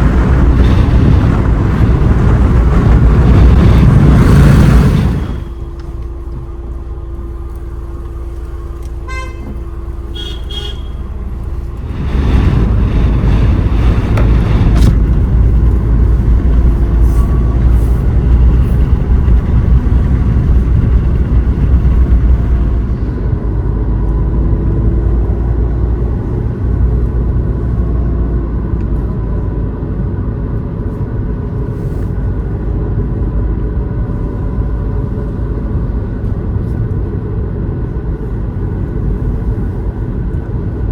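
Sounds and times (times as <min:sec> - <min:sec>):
vehicle engine and road rumble: 0:00.0 - 0:40.9
long horn toot: 0:08.9 - 0:11.6.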